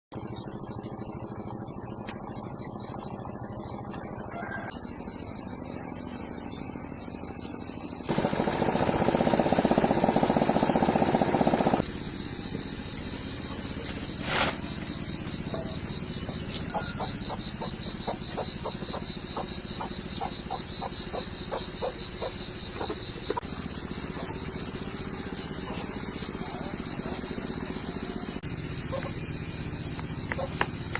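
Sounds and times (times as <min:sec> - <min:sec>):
rapidly pulsing engine-like noise: 0:00.1 - 0:30.9
high insect trilling: 0:11.7 - 0:30.9.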